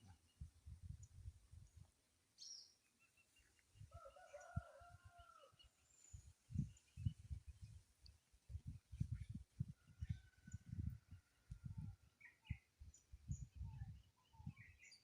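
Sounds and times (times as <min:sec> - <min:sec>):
faint bird chirps: 0:11.6 - 0:15.0.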